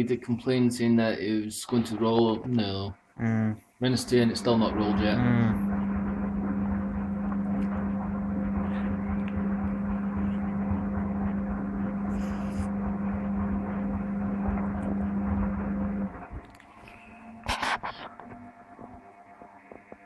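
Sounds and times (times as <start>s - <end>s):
washing machine drain pump humming: 3.9s - 16.6s.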